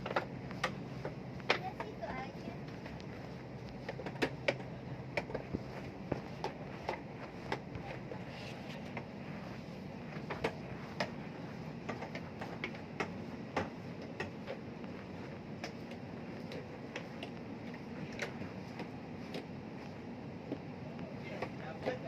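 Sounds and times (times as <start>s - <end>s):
low machinery hum: 0.0s - 22.0s
sharp clicks and knocks: 11.8s - 19.5s.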